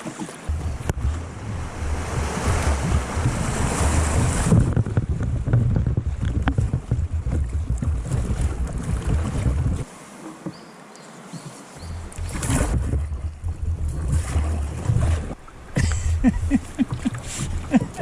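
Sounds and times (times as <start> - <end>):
river rapids rushing: 0.0 - 4.6
wind buffeting microphone: 0.5 - 9.9, 11.8 - 18.0.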